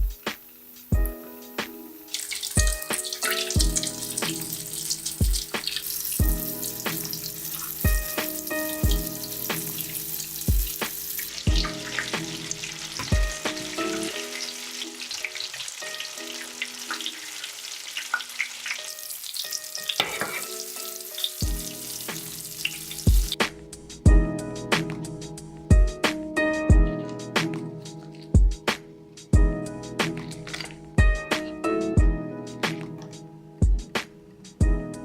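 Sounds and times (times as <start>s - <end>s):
lo-fi hip-hop beat: 0.0s - 14.2s, 21.4s - 22.4s, 23.0s - 35.0s
food sizzling in hot oil: 0.0s - 23.4s.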